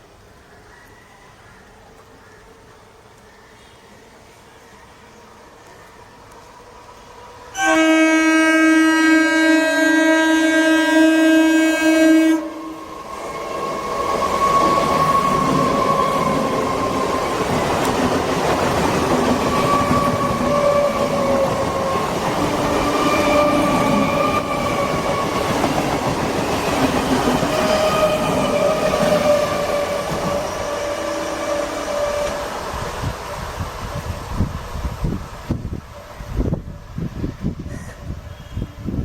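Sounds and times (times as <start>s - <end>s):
train wheels rumbling on rail: 8.9s - 39.0s.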